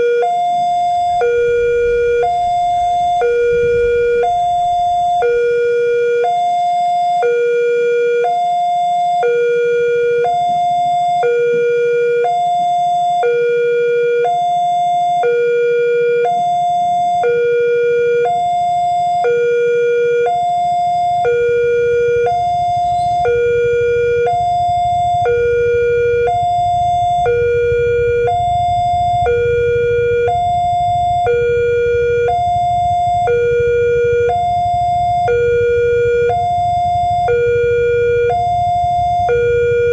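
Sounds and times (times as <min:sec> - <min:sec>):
level crossing two-tone alarm: 0:00.0 - 0:39.9
low rumble: 0:00.6 - 0:06.0, 0:21.4 - 0:39.9.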